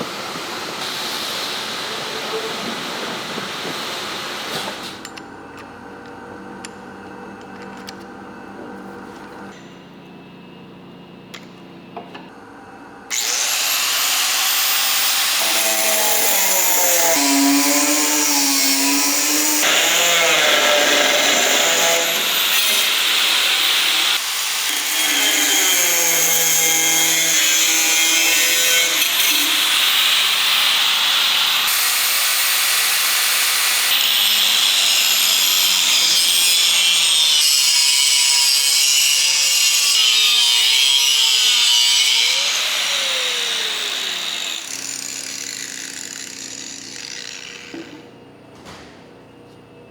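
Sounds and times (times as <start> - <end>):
angle grinder running under load: 0.0 - 4.9, 13.1 - 48.1.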